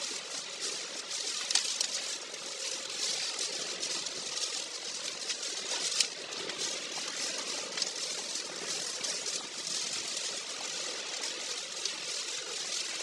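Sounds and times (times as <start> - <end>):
faint ticks: 0.0 - 13.0
wind and rain hissing: 0.0 - 13.0.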